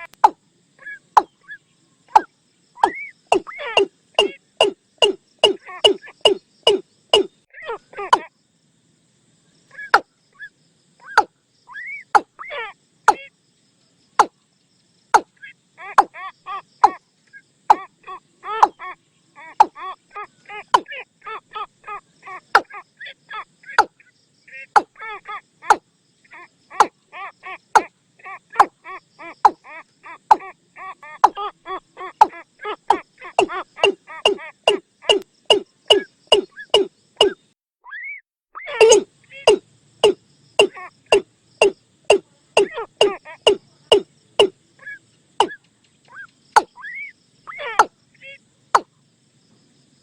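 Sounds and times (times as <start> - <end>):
bird call lure hollow notes: 0.0 - 0.4, 2.1 - 7.3, 20.7 - 20.9, 32.2 - 37.4, 38.8 - 44.5, 45.4 - 45.6
soft bird warbling: 0.0 - 8.3, 9.7 - 13.3, 15.2 - 25.0, 25.6 - 48.9
bird calling sharp descending notes: 38.7 - 41.8.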